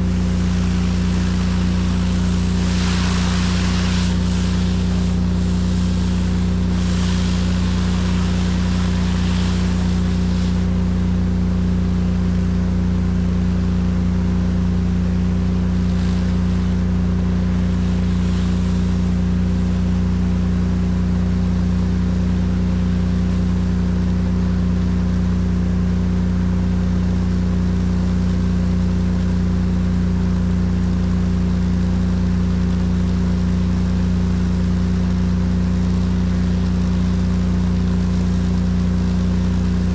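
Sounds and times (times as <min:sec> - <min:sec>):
water spray hissing: 0:00.0 - 0:10.8, 0:15.6 - 0:19.9
engine running under load: 0:00.0 - 0:11.7, 0:14.5 - 0:22.0.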